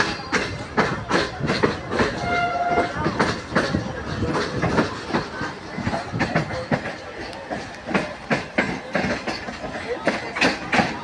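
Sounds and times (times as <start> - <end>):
train running rumble: 0.0 - 11.0
train wheels clattering over rail joints: 0.0 - 11.0
train horn: 2.2 - 3.0.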